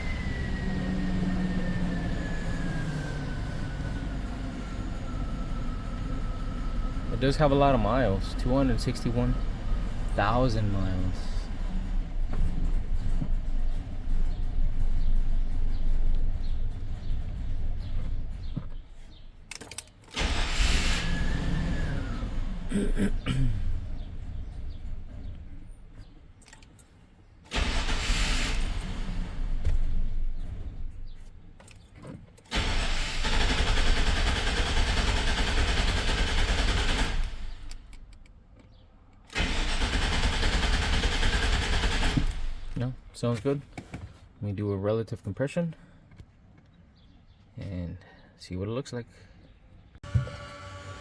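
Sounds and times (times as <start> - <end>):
truck engine turning over: 0.0 - 26.8, 27.5 - 43.6
engine clicks: 7.1 - 44.1.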